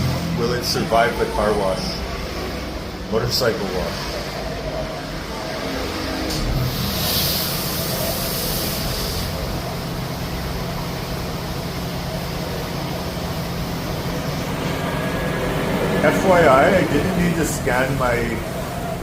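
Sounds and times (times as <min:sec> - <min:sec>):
water spray hissing: 0:06.7 - 0:09.7.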